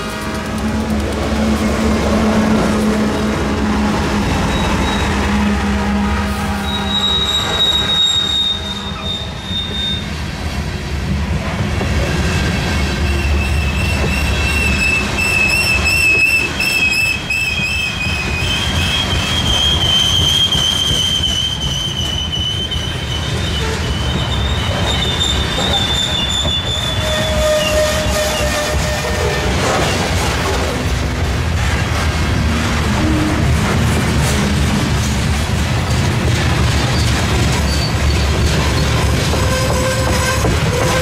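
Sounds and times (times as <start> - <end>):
train cars rumbling past: 0.0 - 41.0
train wheels squealing: 4.3 - 5.4, 6.5 - 10.3, 12.2 - 30.2, 36.8 - 41.0.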